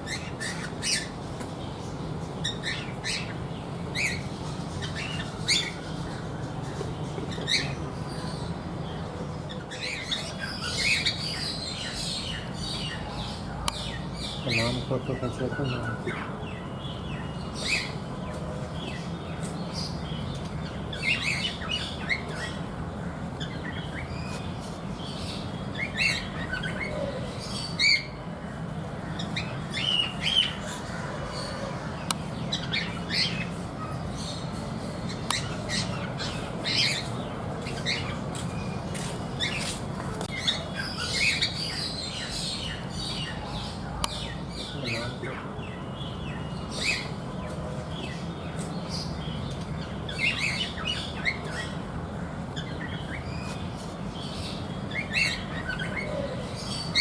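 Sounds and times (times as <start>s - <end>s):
cockatiels chirping and squawking: 25.8s - 27.0s, 35.1s - 45.4s, 48.9s - 51.8s, 52.6s - 57.0s.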